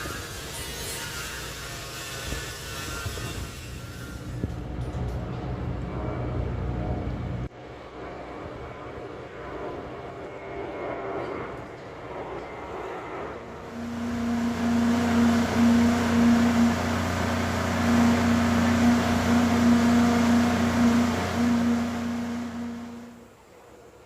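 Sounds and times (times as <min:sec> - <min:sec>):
engine running with low hum: 0:13.4 - 0:23.4.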